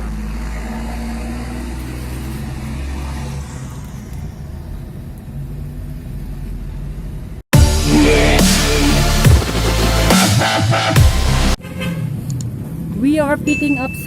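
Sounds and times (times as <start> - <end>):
vehicle engine rumbling: 0.0 - 14.0
loud electronic music: 7.5 - 11.6.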